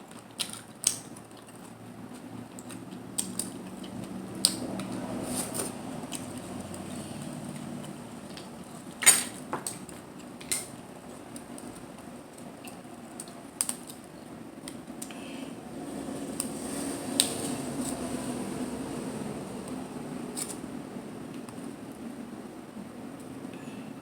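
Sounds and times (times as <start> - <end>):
chewing and mouth sounds: 0.0 - 15.2.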